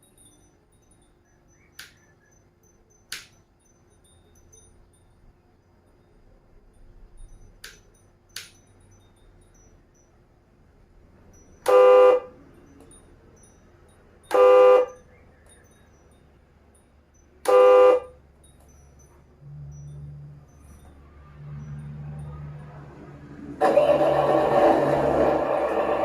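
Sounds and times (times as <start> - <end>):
horn honking: 11.6 - 12.4, 14.3 - 15.0, 17.4 - 18.2, 23.5 - 26.0.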